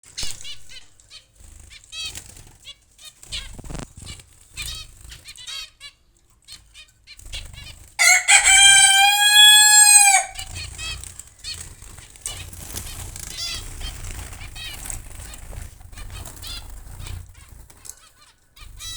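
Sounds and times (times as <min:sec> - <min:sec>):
loud drawn-out bird call: 0:08.0 - 0:10.6.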